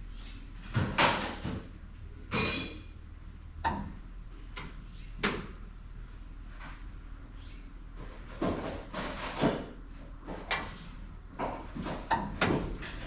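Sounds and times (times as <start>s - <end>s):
metal tools clanking: 2.3s - 2.9s.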